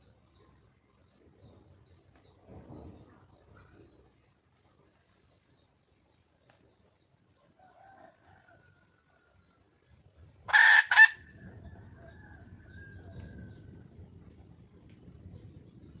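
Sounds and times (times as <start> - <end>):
junglefowl harsh call: 10.5 - 11.4
low rumble: 11.3 - 16.0.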